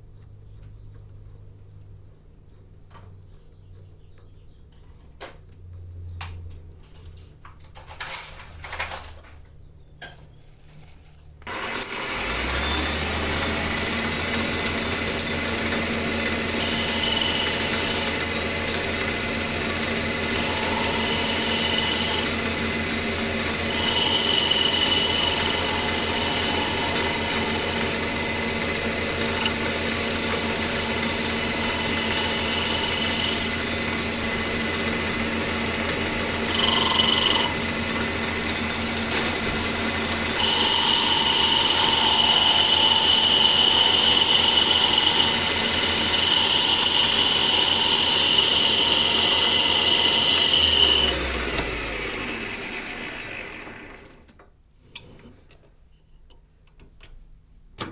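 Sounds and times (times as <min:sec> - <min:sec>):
power tool motor running: 0:11.4 - 0:54.2.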